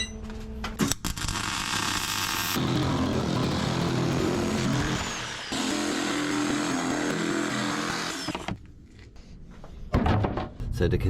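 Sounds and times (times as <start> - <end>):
angle grinder grinding steel: 1.7 - 8.5.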